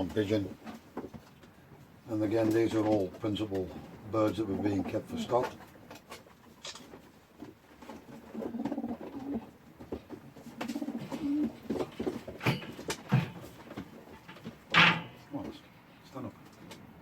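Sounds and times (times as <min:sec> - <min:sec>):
pigeons cooing: 0:08.1 - 0:09.6, 0:10.6 - 0:12.5.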